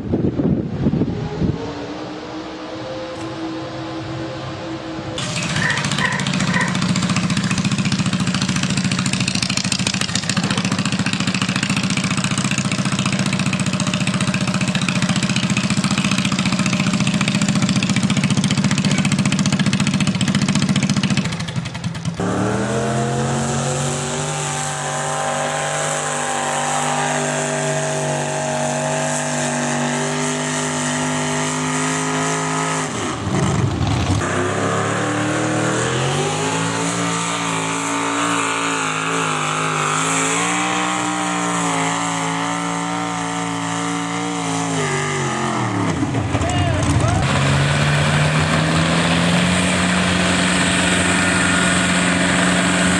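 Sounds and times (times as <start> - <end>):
tractor engine revving hard: 5.2 - 52.9.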